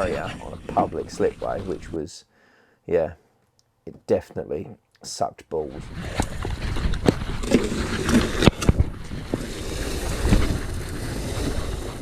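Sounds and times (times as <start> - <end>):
wind rumbling on microphone: 0.0 - 2.0, 5.7 - 12.0.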